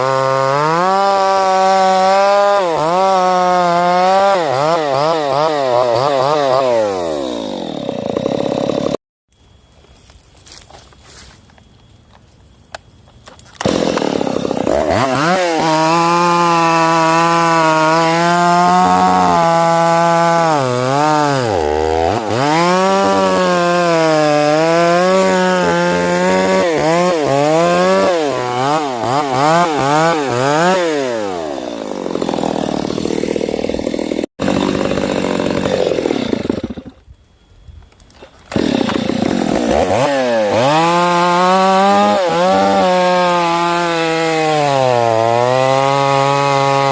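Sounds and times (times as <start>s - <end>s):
chainsaw cutting wood: 0.0s - 9.0s, 13.4s - 37.0s, 38.2s - 46.9s.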